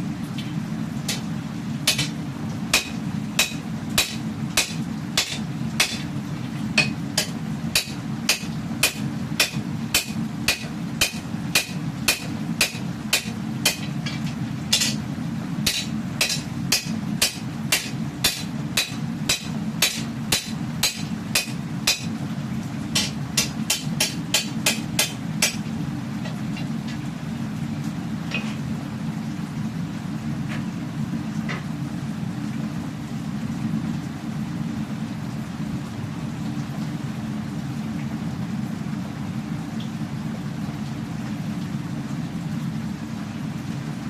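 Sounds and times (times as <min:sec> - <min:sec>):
hammer striking steel: 0:01.9 - 0:02.2, 0:02.8 - 0:06.1, 0:06.8 - 0:15.0, 0:15.7 - 0:22.1, 0:23.0 - 0:25.6.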